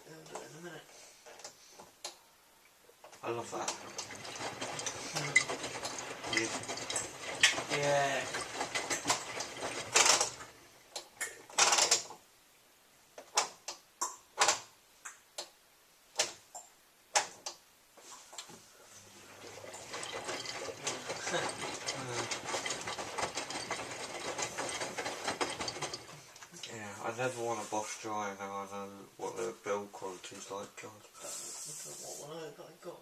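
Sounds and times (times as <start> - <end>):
clicks and knocks: 3.0 - 12.2, 19.5 - 26.5
steady mechanical rattle: 3.2 - 10.7, 19.3 - 26.4
washing machine running: 3.3 - 10.7, 19.1 - 26.3.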